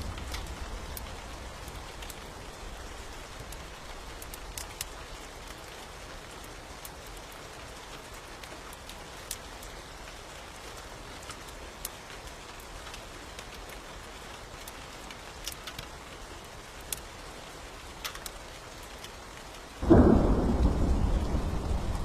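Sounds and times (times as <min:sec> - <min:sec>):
steady rain: 0:00.0 - 0:22.0
thunderclap rumbling: 0:19.8 - 0:22.0.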